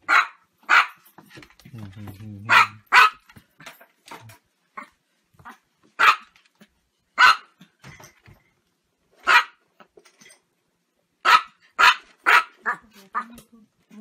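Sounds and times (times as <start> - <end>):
small dog barking: 0.0 - 1.0, 2.5 - 3.2, 4.8 - 6.3, 7.2 - 7.6, 9.2 - 9.6, 11.2 - 13.3.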